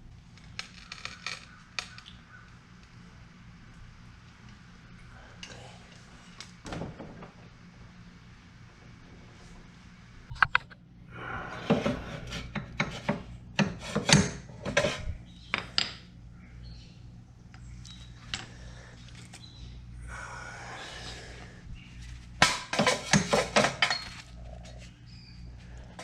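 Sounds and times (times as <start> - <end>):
steady low hum: 0.0 - 26.0
sharp clicks and knocks: 10.3 - 10.8.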